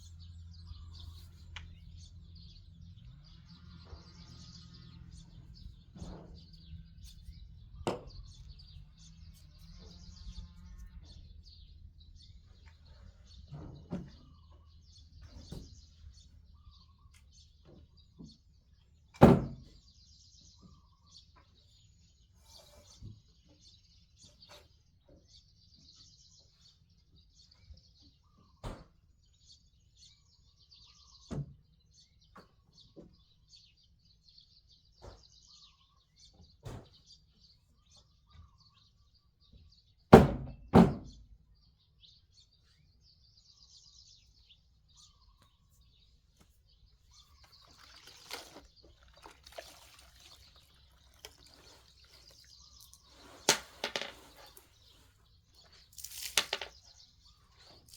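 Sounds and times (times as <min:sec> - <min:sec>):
birds chirping: 0:00.0 - 0:40.1, 0:41.1 - 0:57.9
rustling: 0:47.3 - 0:56.9.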